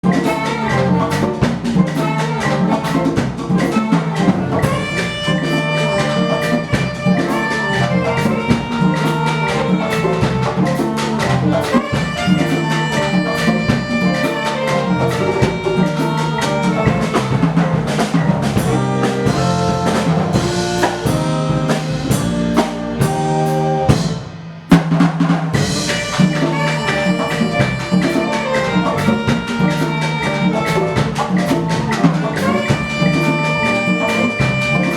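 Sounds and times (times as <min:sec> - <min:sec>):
held notes from pitched instruments: 0:00.0 - 0:24.5, 0:25.5 - 0:34.9
percussion drums beating: 0:00.0 - 0:34.9.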